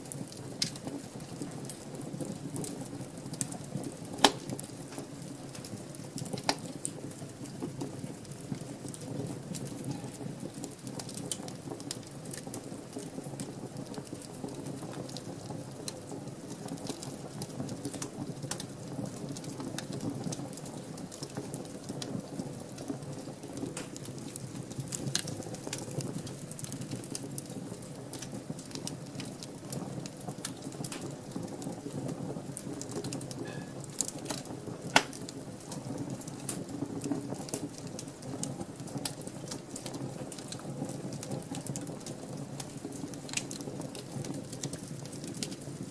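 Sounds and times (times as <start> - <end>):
fire crackling and snapping: 0.0 - 45.9
fire flames rushing: 0.0 - 45.9
loud fire pop: 4.2 - 4.5, 34.9 - 35.2.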